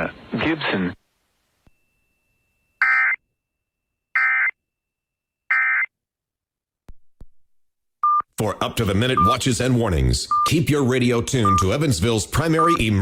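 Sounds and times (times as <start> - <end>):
harsh digital squawks: 2.8 - 3.2, 4.2 - 4.6, 5.5 - 5.9.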